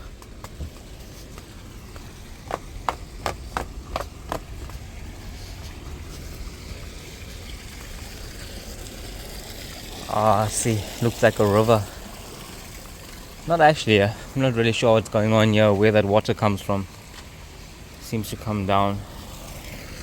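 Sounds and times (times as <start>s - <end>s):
light footsteps: 0.0s - 8.2s
stream water flowing: 0.0s - 20.0s.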